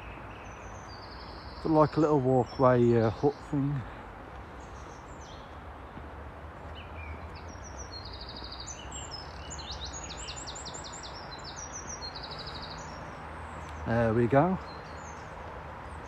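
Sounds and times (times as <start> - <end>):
songbird trilling: 7.0 - 15.2.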